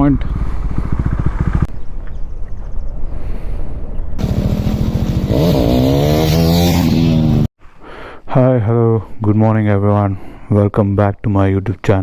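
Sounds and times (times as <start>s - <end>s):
motorcycle engine running: 0.6s - 1.7s, 4.2s - 7.5s.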